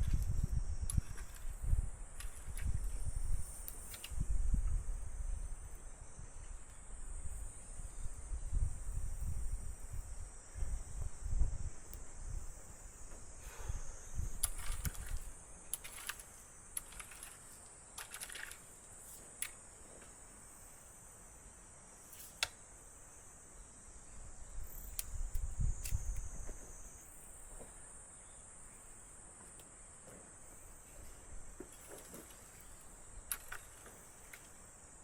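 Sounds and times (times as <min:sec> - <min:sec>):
insects trilling: 0:00.0 - 0:35.0
sharp clicks: 0:14.4 - 0:18.7, 0:33.2 - 0:34.6.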